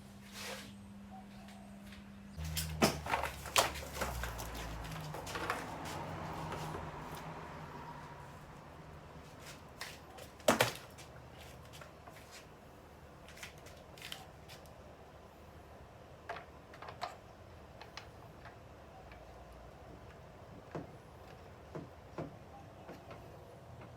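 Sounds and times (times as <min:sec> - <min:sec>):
tools clattering: 0:02.4 - 0:05.9.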